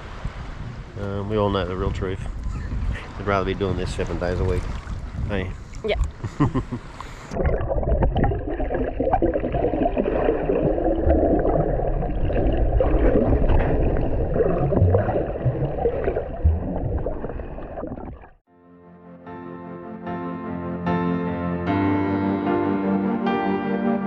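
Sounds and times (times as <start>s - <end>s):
jet ski water and wind rush: 0.0s - 7.4s
low thumps: 7.4s - 18.4s.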